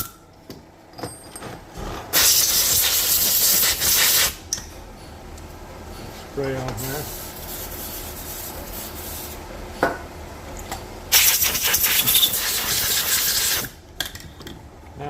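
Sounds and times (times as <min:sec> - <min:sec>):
aerosol spray can hissing: 0:11.1 - 0:13.7.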